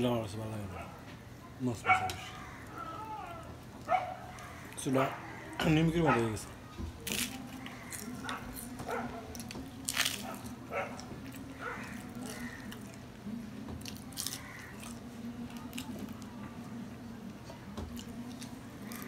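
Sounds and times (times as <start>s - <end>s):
man chewing crunchy bread: 1.9s - 19.0s.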